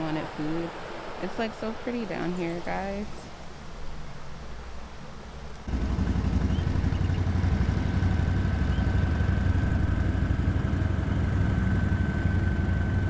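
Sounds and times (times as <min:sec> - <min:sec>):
atv engine rumbling: 0:05.6 - 0:13.0.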